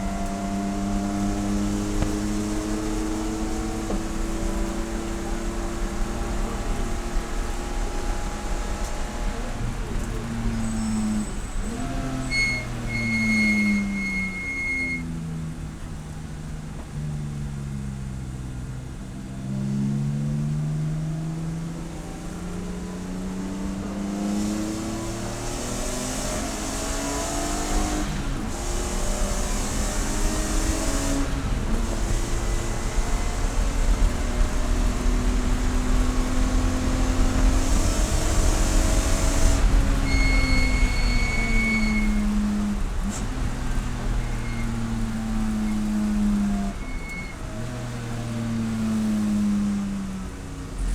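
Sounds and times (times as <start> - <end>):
race car engine revving: 0.0 - 50.9.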